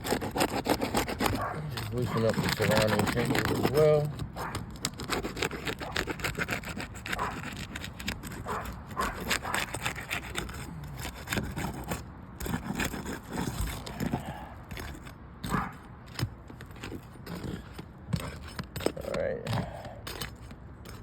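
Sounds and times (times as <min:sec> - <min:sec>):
tool scraping under roof shingles: 0:00.0 - 0:21.0.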